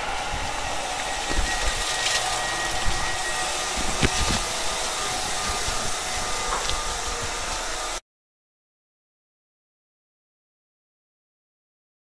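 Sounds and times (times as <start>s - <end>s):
train air conditioning hum: 0.0s - 8.0s.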